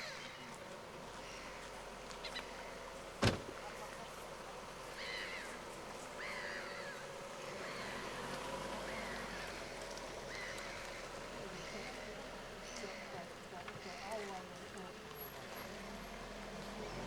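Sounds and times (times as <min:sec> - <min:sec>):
flock of birds calling harshly: 0:04.9 - 0:14.4.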